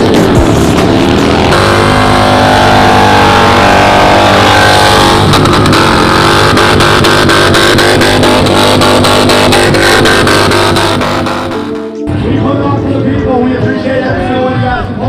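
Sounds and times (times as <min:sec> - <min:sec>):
motorcycle engine revving hard: 0:00.0 - 0:12.0.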